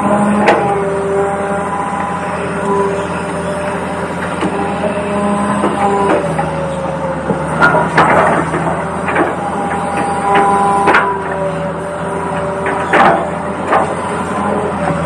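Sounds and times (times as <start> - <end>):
electric gear motors whining: 0.0 - 15.0
plastic clacks and knocks: 12.6 - 13.9.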